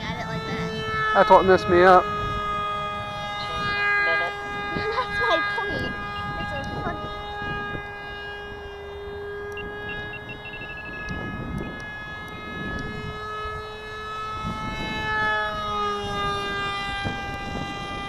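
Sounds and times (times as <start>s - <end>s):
model airplane motor whine: 0.0s - 18.0s.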